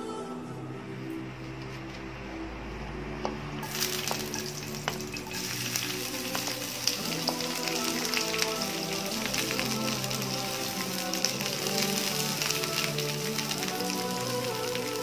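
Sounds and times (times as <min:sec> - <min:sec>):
onions sizzling in hot oil: 0:03.6 - 0:15.0.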